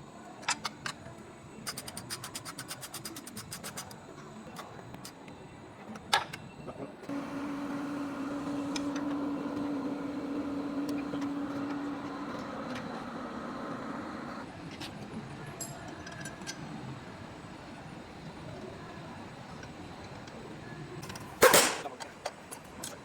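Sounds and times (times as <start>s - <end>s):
machine humming: 7.1s - 14.4s.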